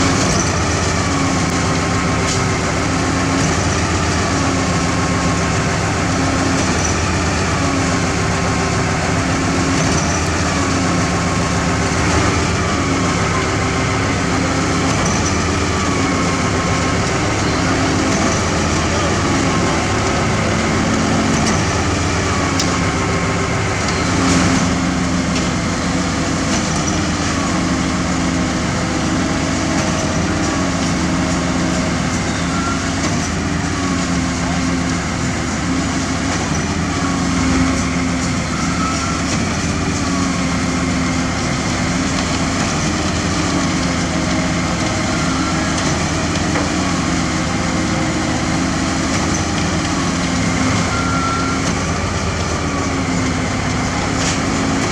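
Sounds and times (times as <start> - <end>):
diesel engines running: 0.0 - 54.9.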